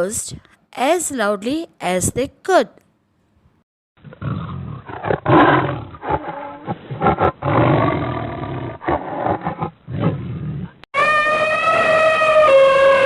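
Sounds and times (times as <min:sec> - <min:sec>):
big cats roaring: 0:04.0 - 0:10.8.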